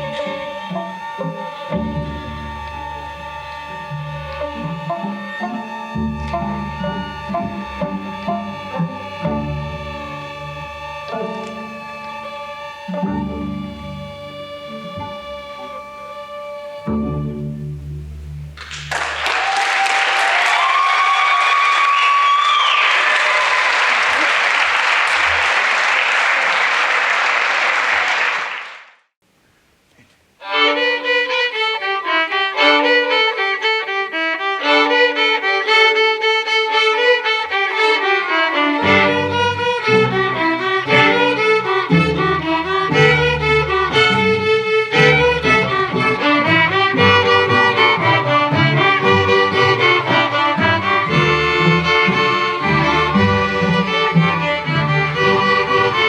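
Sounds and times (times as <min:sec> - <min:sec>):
lower strings playing: 0:00.0 - 0:19.2, 0:30.4 - 0:56.0
violins playing: 0:00.0 - 0:19.3, 0:30.4 - 0:56.0
audience applauding: 0:18.6 - 0:29.0.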